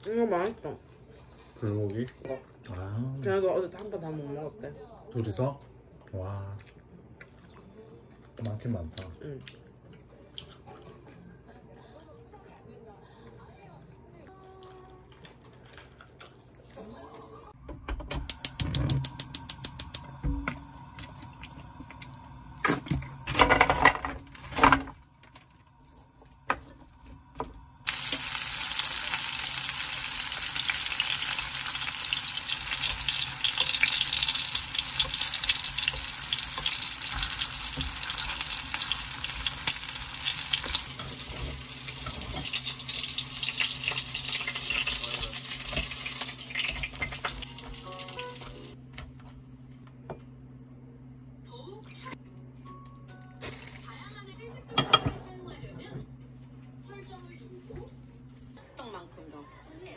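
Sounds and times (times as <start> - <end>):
dumplings sizzling in oil: 26.4 - 48.8.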